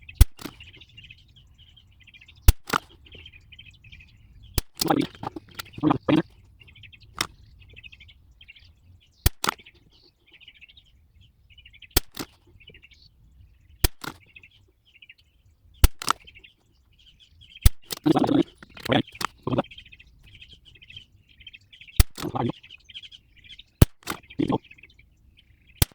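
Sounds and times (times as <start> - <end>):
birds chirping: 0.0 - 25.9.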